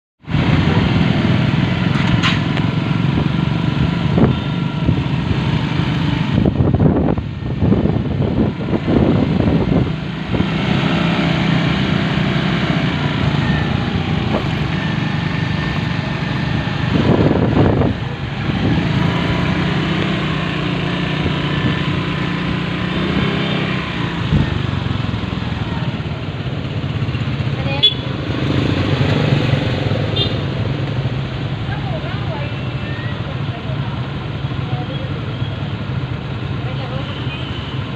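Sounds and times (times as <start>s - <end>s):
motorcycle engine running: 0.4s - 32.4s.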